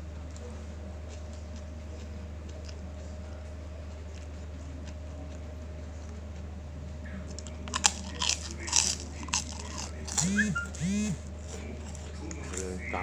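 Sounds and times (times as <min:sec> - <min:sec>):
steady low hum: 0:00.0 - 0:13.0
person crunching crisp food: 0:07.1 - 0:12.8.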